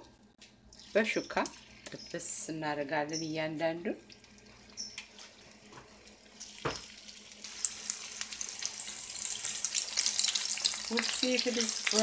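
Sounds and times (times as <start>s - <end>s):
batter frying in hot oil: 0.8s - 12.0s.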